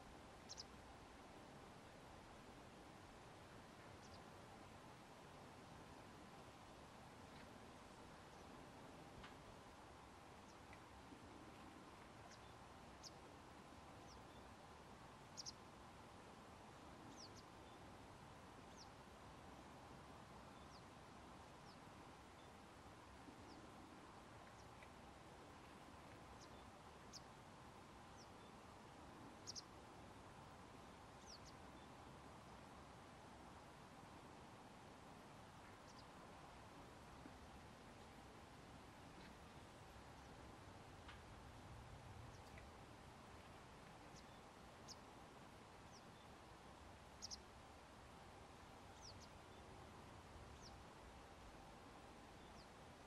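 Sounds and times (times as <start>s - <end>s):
faint outdoor hiss: 0.0s - 53.0s
small bird calling: 0.4s - 0.8s, 3.9s - 4.3s, 12.2s - 13.2s, 15.3s - 15.6s, 17.0s - 17.8s, 26.3s - 27.3s, 29.3s - 29.7s, 30.8s - 31.7s, 35.8s - 36.2s, 42.3s - 42.7s, 47.1s - 47.5s, 48.9s - 49.4s.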